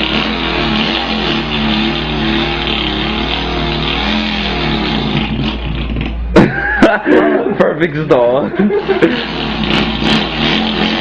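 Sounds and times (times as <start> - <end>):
man imitating car engine: 8.2 - 11.0.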